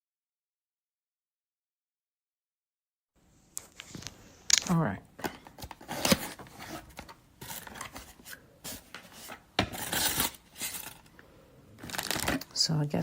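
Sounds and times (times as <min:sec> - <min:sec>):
packaging rustling: 0:03.6 - 0:11.1, 0:11.8 - 0:12.7.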